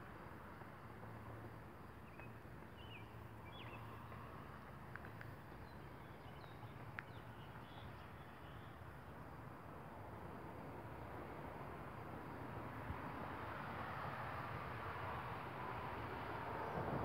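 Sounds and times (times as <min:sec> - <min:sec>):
small ticks: 0:06.7 - 0:07.7.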